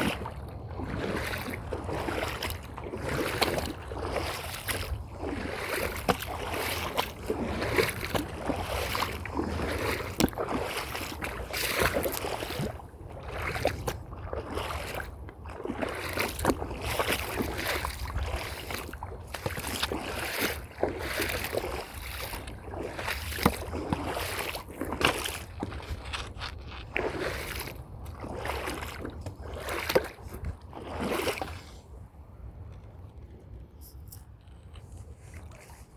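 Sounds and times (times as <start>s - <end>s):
footsteps on a trail: 23.1s - 27.8s.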